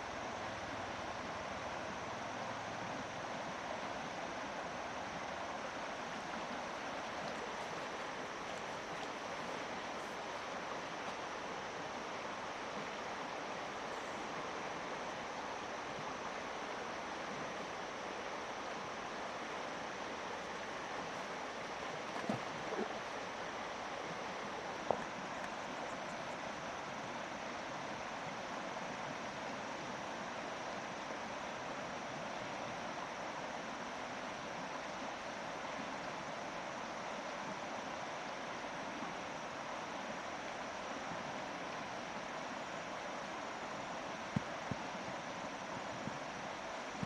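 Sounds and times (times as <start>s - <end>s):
river water rushing: 0.0s - 47.0s
knocks or splashes: 21.9s - 23.2s.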